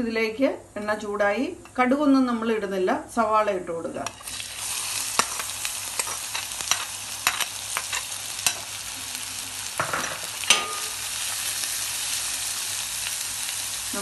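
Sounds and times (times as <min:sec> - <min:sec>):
onions sizzling in hot oil: 0:04.0 - 0:14.0
spoon clicking and scraping pan: 0:05.1 - 0:08.8, 0:10.1 - 0:11.2.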